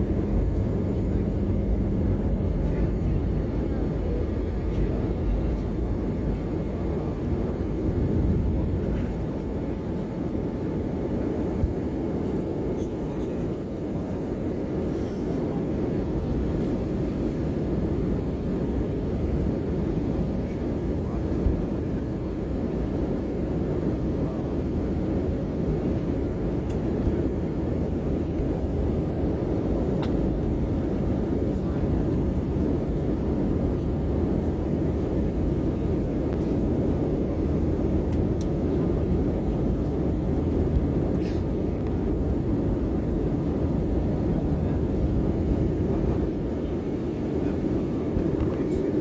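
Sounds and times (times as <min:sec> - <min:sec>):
airliner cabin rumble: 0:00.0 - 0:49.0.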